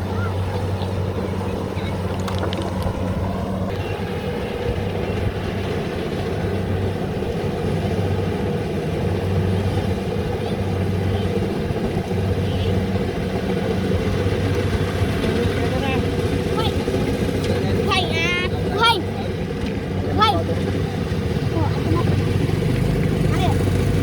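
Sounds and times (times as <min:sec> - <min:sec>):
engine running steadily: 0:00.0 - 0:24.0
light clicks or rattles: 0:02.0 - 0:03.1.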